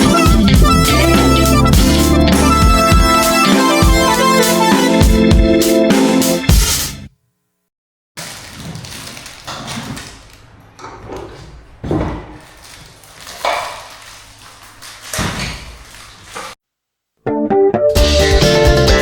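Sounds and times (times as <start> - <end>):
wooden furniture knocks and thuds: 11.8 - 12.4.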